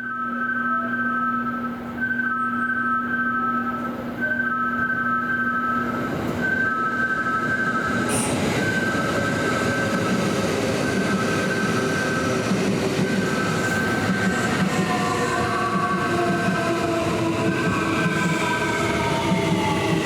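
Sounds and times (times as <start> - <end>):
two-tone electronic signal: 0.0 - 10.2
electric train arriving: 0.0 - 20.0.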